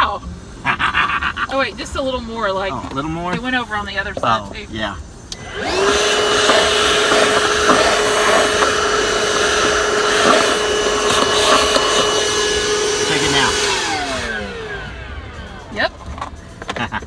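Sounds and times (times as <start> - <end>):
shop vacuum motor running: 5.2 - 17.0.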